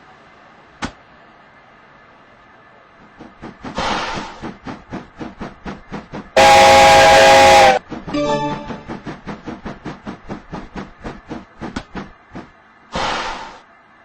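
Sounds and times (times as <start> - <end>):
steam locomotive chuffing: 3.1 - 13.6
steam hissing: 3.3 - 8.2, 12.9 - 13.6
steam whistle: 6.4 - 8.9.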